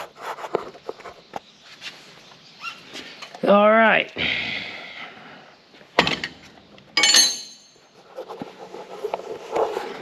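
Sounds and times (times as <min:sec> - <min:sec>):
high metallic clatter: 0:07.0 - 0:07.8.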